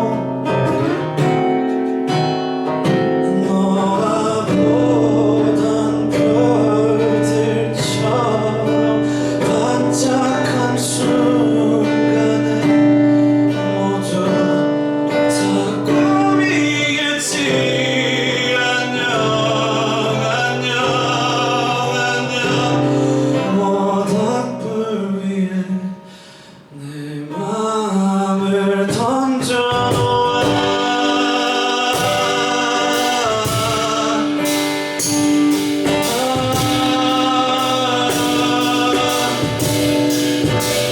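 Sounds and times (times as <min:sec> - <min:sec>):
acoustic guitar: 0:00.0 - 0:40.9
man singing: 0:00.0 - 0:40.9
hand percussion: 0:29.7 - 0:40.9.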